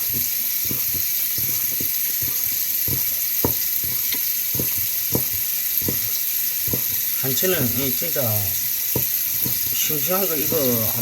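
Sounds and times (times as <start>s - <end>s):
knife knocking on cutting board: 0.0s - 7.0s, 8.9s - 9.8s
steady hiss: 0.0s - 11.0s.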